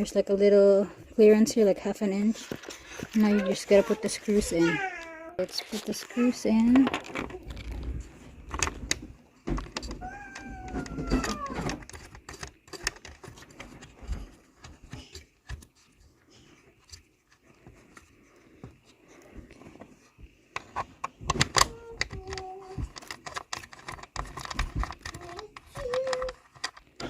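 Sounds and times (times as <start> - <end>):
screws and plastic parts clicking: 5.4 - 16.0, 20.5 - 27.0.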